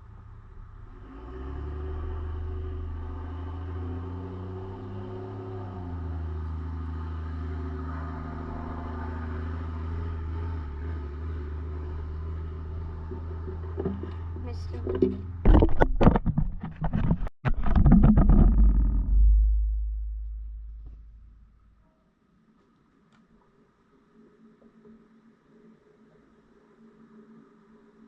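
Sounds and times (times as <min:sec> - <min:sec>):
motor engine running: 0:16.6 - 0:21.4.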